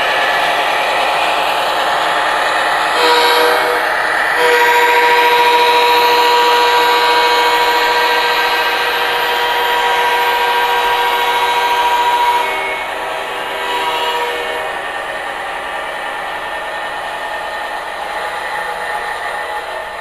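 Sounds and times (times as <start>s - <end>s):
model train whirring: 0.0s - 20.0s
model train horn: 2.9s - 14.9s.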